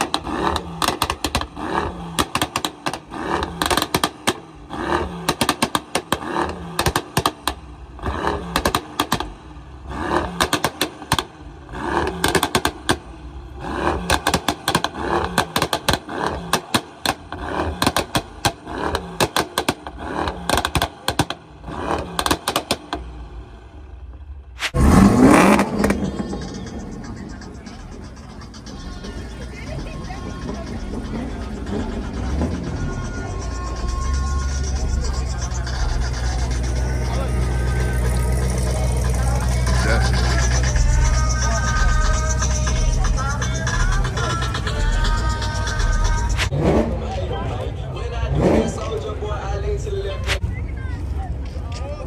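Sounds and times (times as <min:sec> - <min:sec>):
car engine revving: 0:00.0 - 0:50.4
rapid irregular crackling: 0:25.5 - 0:46.5.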